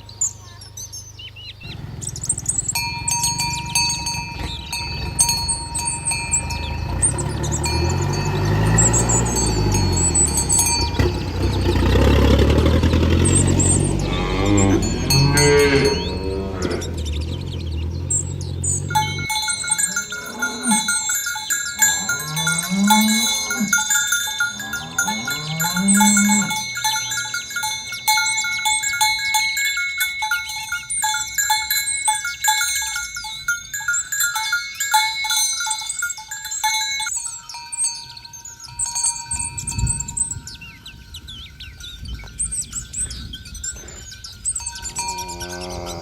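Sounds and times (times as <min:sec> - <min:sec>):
bells ringing and tinkling: 0:00.0 - 0:46.0
birds chirping: 0:00.0 - 0:46.0
cattle mooing: 0:06.3 - 0:21.2, 0:21.8 - 0:27.3, 0:44.9 - 0:46.0.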